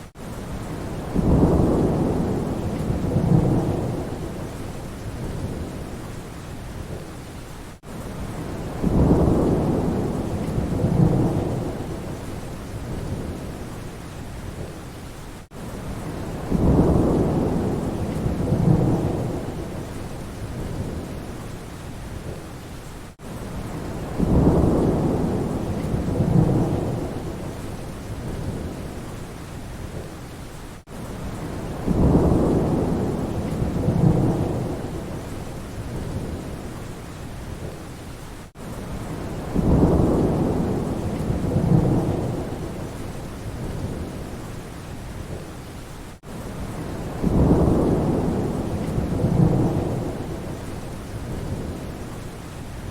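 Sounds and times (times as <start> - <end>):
steady rain: 0.0 - 52.9
low rolling thunder: 0.6 - 6.0, 8.2 - 13.7, 15.9 - 21.4, 23.2 - 29.1, 31.2 - 36.7, 38.9 - 44.4, 46.5 - 52.0.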